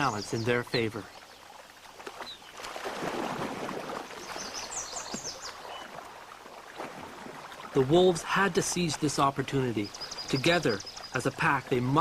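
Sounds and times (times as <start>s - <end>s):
high chirping calls: 0.0s - 0.9s, 9.8s - 11.4s
water splashing and churning: 0.0s - 12.0s.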